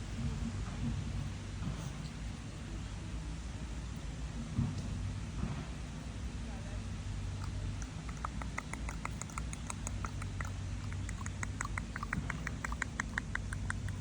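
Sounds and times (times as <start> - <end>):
low steady hum: 0.0 - 14.0
squirrel clicking: 7.4 - 14.0.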